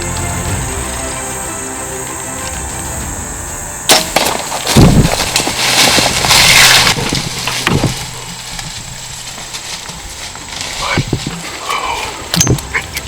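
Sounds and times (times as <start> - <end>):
animal crashing through brush: 3.8 - 12.8.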